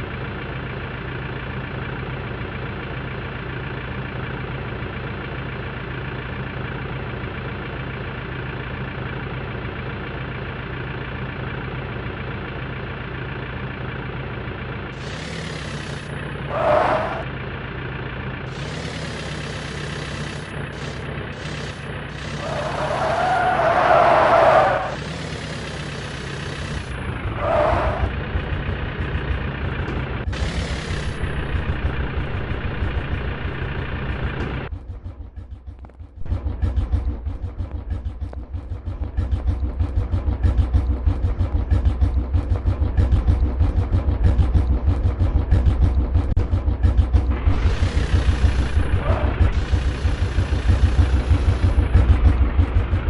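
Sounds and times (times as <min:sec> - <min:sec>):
tractor engine running: 0:00.0 - 0:53.0.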